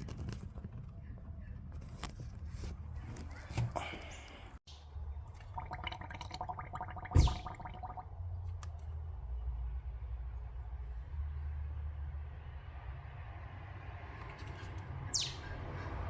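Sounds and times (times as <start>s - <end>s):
gurgling pulses: 5.5s - 8.0s.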